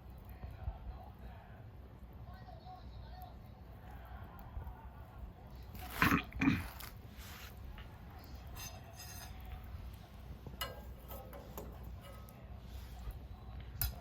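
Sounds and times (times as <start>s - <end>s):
wood fire burning: 0.0s - 14.0s
light metallic clicks and clinks: 10.4s - 13.1s.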